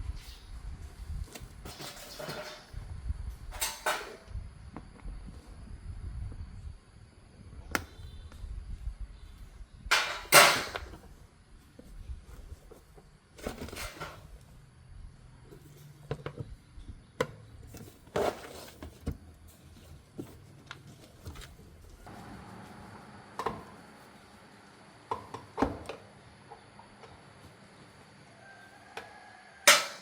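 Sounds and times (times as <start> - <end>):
rustling or scraping: 0.1 - 2.8, 9.9 - 14.6, 17.6 - 23.0.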